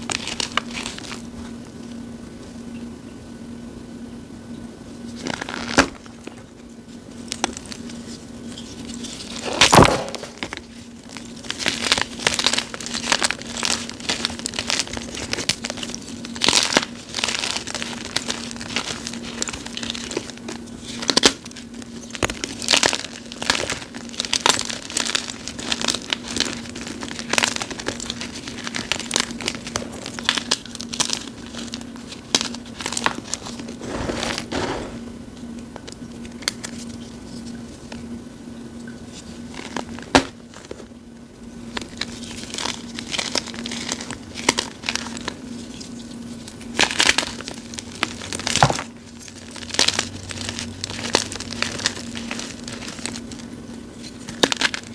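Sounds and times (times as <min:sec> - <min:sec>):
chalk block crushed by hand: 0:09.5 - 0:10.5.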